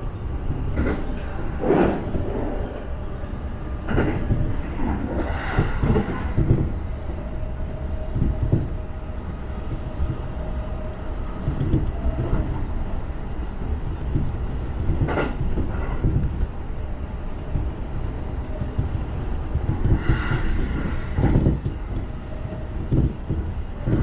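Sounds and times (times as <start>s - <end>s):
train wheels rumbling on rails: 0.0s - 24.0s
loud train clatters: 3.8s - 6.8s, 13.6s - 16.6s, 18.5s - 24.0s.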